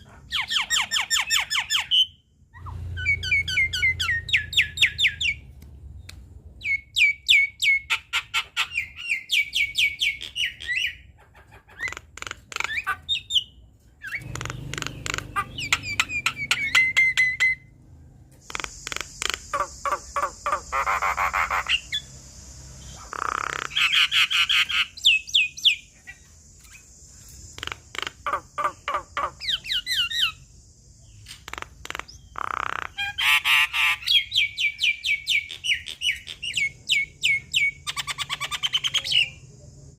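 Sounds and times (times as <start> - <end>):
steady high hiss: 18.5 - 24.4, 25.0 - 31.3.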